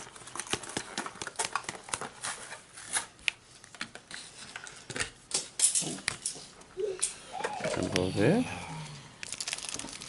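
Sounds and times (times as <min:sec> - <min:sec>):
card edges rustling: 0:00.0 - 0:04.8, 0:09.2 - 0:10.0.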